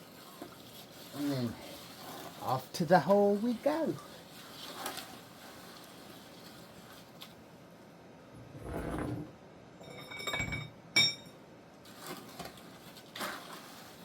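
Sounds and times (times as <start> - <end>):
metal scraping: 8.4 - 9.4
ringing metal clank: 9.8 - 11.3.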